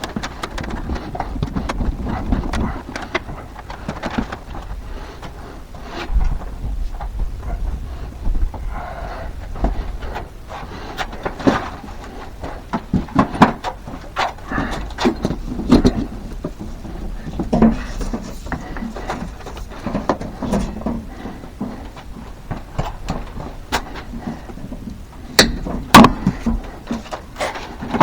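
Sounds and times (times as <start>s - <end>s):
electrical conduit clicking and clattering: 0.0s - 5.4s, 6.2s - 28.0s.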